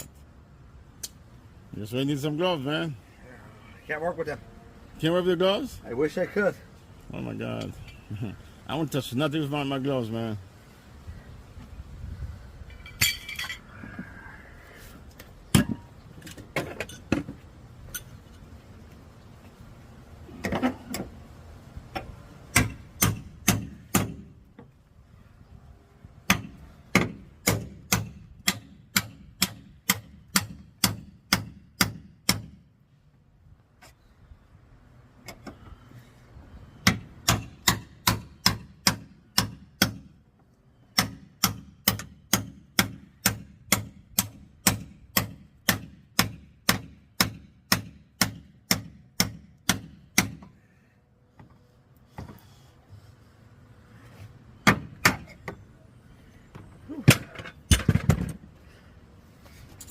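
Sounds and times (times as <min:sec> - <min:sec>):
hammer striking car bodywork: 0:22.5 - 0:24.4, 0:26.3 - 0:32.6, 0:36.8 - 0:40.1, 0:41.0 - 0:50.5, 0:54.6 - 0:55.6.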